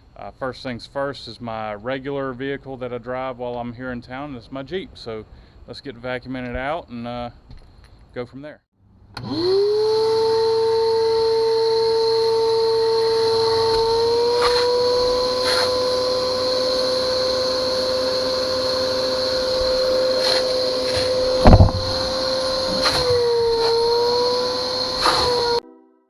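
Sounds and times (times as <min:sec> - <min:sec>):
shop vacuum whining: 0:09.1 - 0:25.6
knocks: 0:20.9 - 0:23.2.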